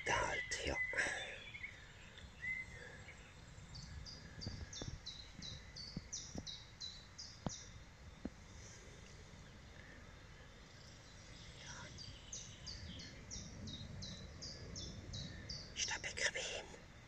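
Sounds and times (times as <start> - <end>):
songbird singing high notes: 0.0 - 1.7
faint woodland background: 0.0 - 17.0
faint clicks: 9.0 - 10.0.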